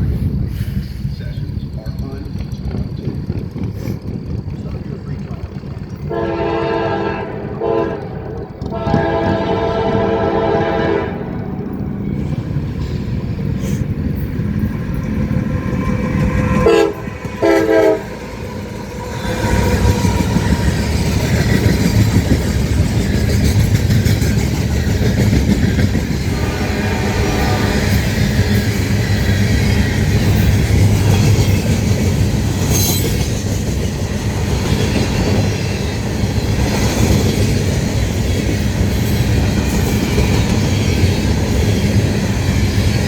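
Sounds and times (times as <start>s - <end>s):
train rumble: 0.0s - 43.0s
locomotive horn blasts: 6.1s - 11.5s, 16.4s - 18.2s, 26.3s - 28.0s.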